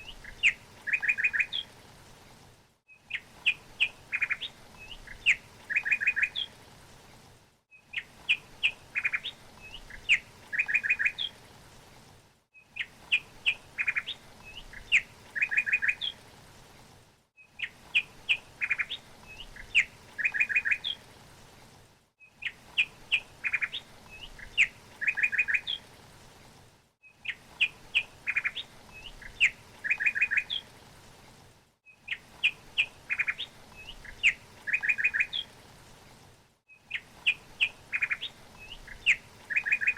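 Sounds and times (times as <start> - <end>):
songbird chirps and trill: 0.0 - 1.8, 2.9 - 6.6, 7.7 - 11.4, 12.5 - 16.2, 17.4 - 21.0, 22.2 - 25.9, 27.0 - 30.7, 31.8 - 35.6, 36.7 - 39.9.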